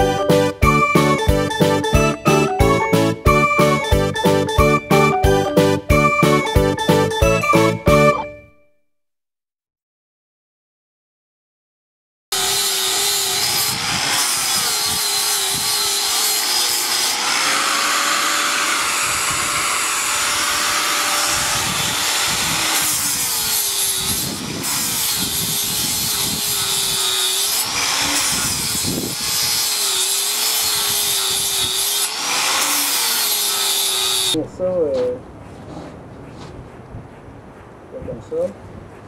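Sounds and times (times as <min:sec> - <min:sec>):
electric power tool working metal: 0:12.4 - 0:34.4.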